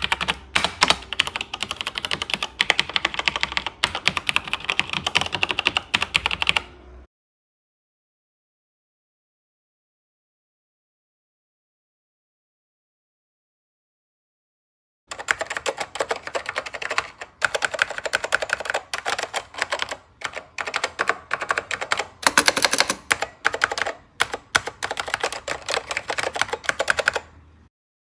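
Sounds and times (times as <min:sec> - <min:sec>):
fast typing on keyboard: 0:00.0 - 0:06.7, 0:15.1 - 0:27.4.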